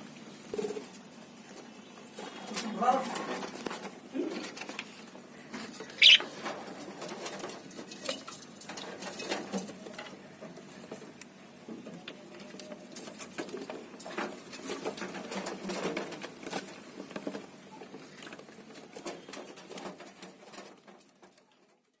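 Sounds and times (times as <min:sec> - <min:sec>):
parrots tapping and scratching: 0:00.6 - 0:11.2, 0:12.9 - 0:21.9
parrot chirp: 0:05.8 - 0:06.4.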